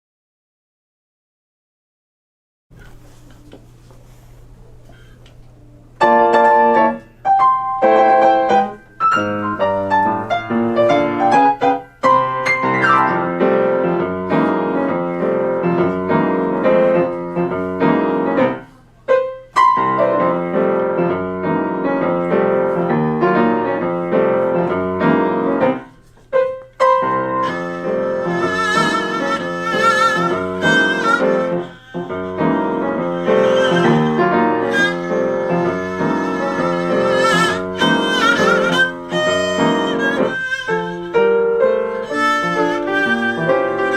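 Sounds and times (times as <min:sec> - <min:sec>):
piano playing classical piece: 0:06.0 - 0:43.9
violin vibrato melody: 0:27.0 - 0:43.9.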